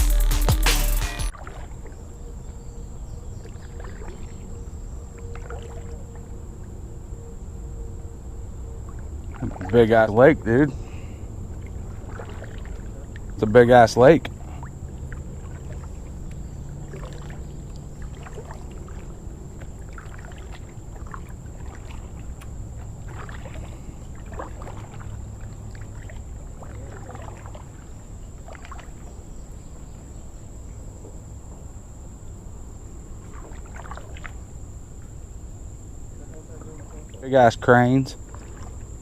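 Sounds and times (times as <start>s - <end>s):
small water splashes and drips: 1.3s - 2.1s, 3.4s - 6.8s, 8.8s - 10.2s, 10.8s - 29.4s, 33.1s - 35.2s, 36.3s - 39.0s.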